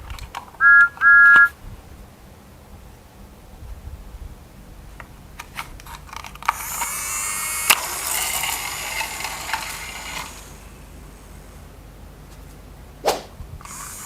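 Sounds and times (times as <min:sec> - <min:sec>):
plastic parts rattling clatter: 0:05.4 - 0:07.0, 0:07.7 - 0:10.6
plastic toy parts clicking: 0:05.4 - 0:10.6.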